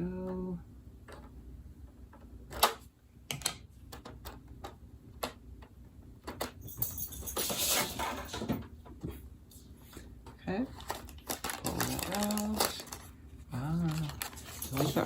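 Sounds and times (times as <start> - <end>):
packaging crinkling rustle: 10.7 - 15.0.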